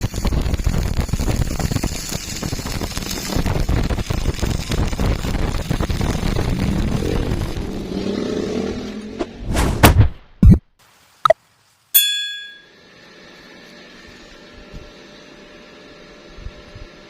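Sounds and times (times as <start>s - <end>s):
welding arc crackling and sizzling: 0.0s - 9.0s.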